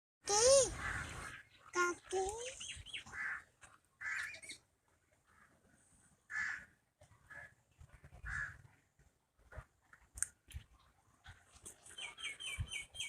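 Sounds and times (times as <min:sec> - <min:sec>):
high bird chirp: 0:00.5 - 0:03.2, 0:11.8 - 0:13.0.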